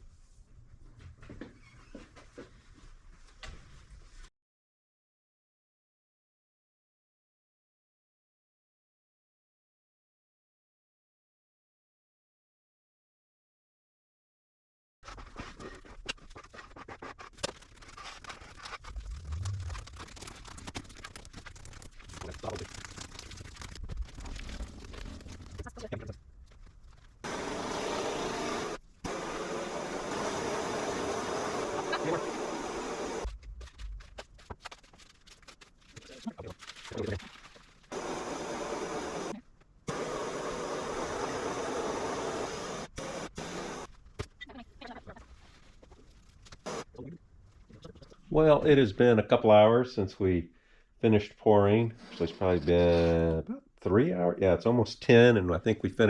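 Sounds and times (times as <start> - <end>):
scratching on a hard surface: 15.0 - 27.3, 33.2 - 37.9.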